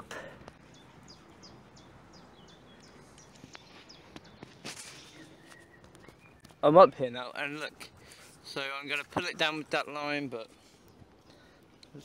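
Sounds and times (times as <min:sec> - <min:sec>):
faint bird song: 0:00.1 - 0:08.6.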